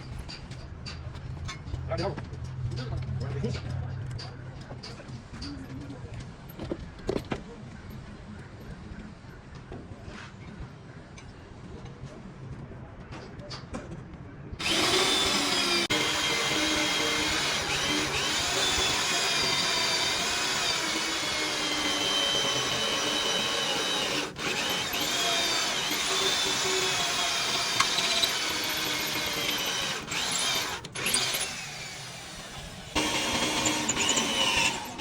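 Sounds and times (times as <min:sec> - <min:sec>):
electric power tool whining: 0:14.6 - 0:35.0.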